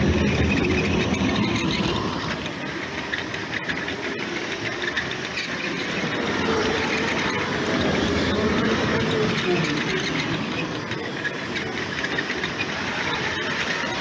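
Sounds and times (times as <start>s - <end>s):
toy train wheels rattling: 0.0s - 14.0s.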